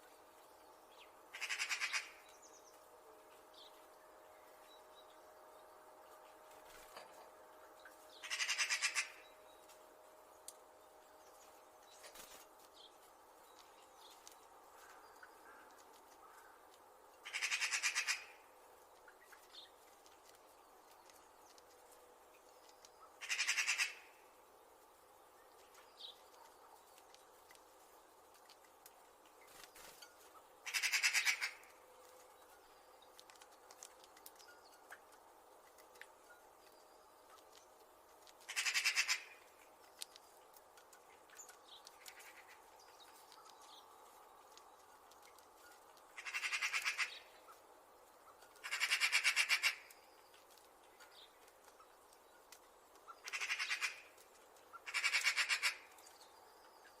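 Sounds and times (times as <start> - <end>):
magpies chattering: 1.3 - 2.2, 8.2 - 9.2, 17.2 - 18.4, 23.0 - 24.0, 30.6 - 31.7, 38.4 - 39.4, 46.1 - 47.6, 48.4 - 50.0, 53.0 - 55.9.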